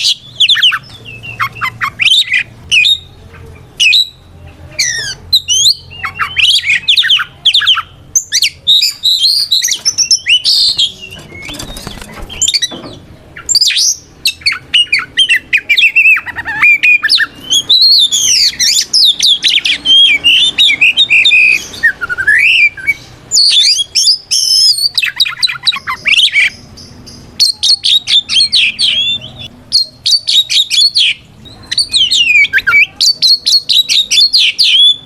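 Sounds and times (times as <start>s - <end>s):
magpie-robin singing: 0.0s - 35.0s.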